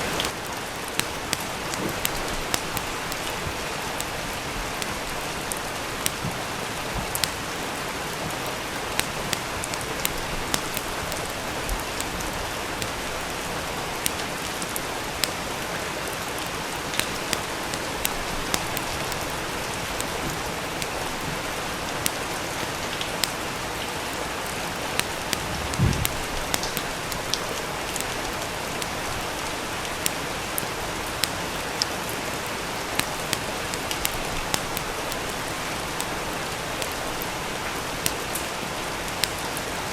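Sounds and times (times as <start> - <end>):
rain hiss: 0.0 - 39.9
wood fire crackling: 0.0 - 39.9
low soft thump: 25.5 - 26.3.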